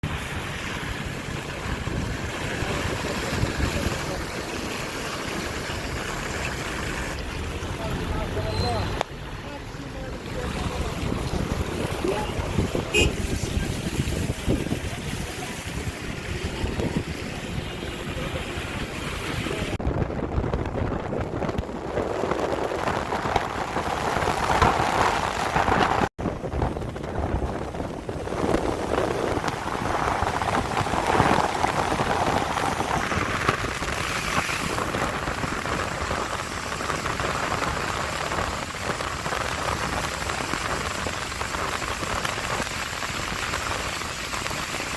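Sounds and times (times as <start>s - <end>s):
rain falling: 0.0s - 19.8s, 20.8s - 44.9s
wind buffeting microphone: 10.5s - 44.9s.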